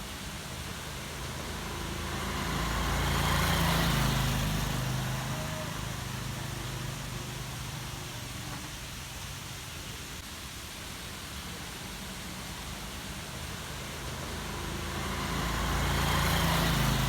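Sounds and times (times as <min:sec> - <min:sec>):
waterfall rushing: 0:00.1 - 0:07.8.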